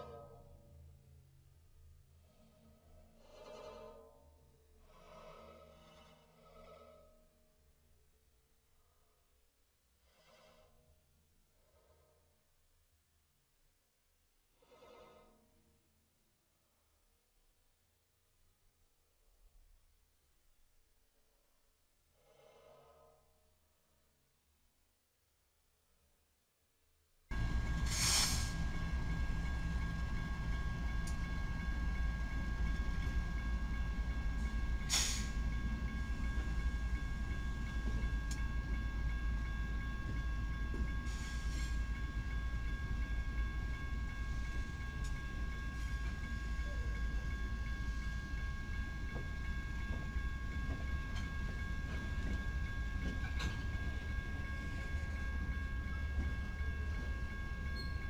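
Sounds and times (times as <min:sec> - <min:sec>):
freight train rumbling past: 0:27.3 - 0:58.0
high whine: 0:27.3 - 0:58.0.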